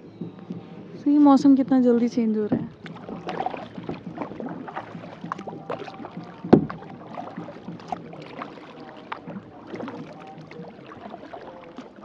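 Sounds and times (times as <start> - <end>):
water drips: 2.3 - 12.0
paddle splashing in water: 2.5 - 12.0
small knocks: 2.5 - 12.0.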